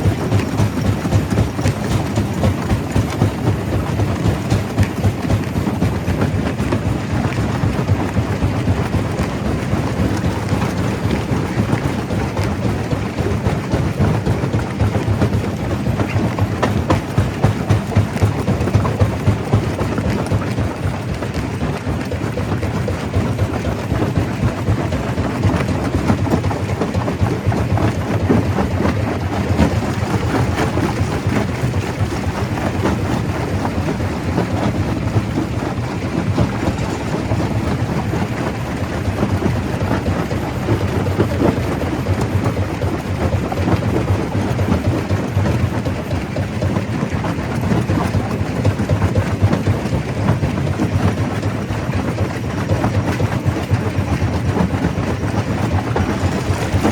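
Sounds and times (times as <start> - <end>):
stone crusher rumbling: 27.4 - 43.0, 55.7 - 56.9.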